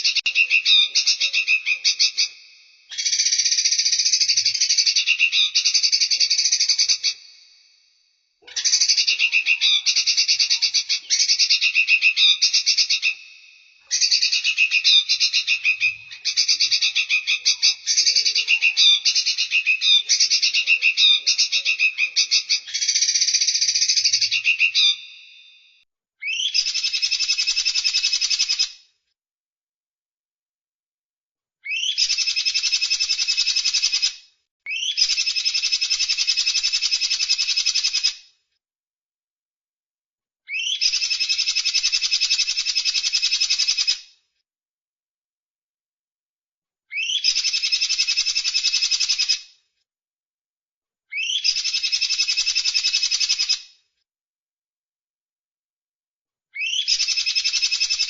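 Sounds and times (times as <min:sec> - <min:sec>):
songbird trilling: 0:00.0 - 0:07.3, 0:08.4 - 0:13.3, 0:13.9 - 0:25.4, 0:26.2 - 0:28.6, 0:31.7 - 0:34.0, 0:34.7 - 0:38.1, 0:40.5 - 0:44.0, 0:47.0 - 0:49.3, 0:51.2 - 0:53.6, 0:56.6 - 0:58.0.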